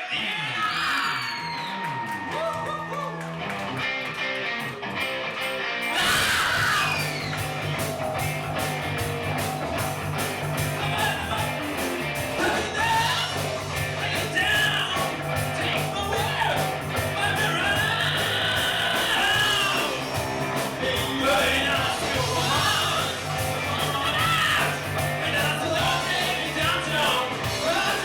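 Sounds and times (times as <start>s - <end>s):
drums: 0.0s - 28.0s
electric guitar: 0.6s - 28.0s
bass line: 6.0s - 28.0s
person singing: 12.4s - 28.0s.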